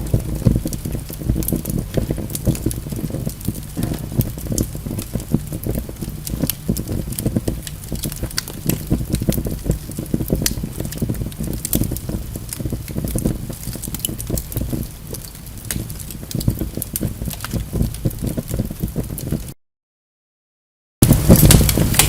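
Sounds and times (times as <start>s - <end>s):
wood fire crackling: 0.0s - 19.6s, 21.0s - 22.0s.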